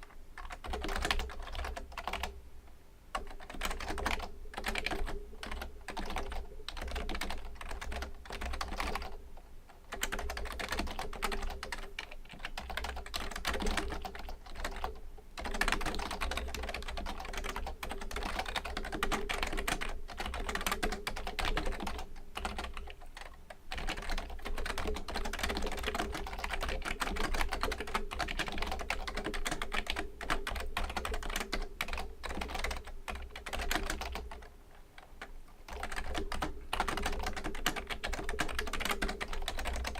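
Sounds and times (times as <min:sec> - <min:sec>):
typing on keyboard: 0:00.0 - 0:02.4, 0:03.1 - 0:09.2, 0:09.9 - 0:39.9.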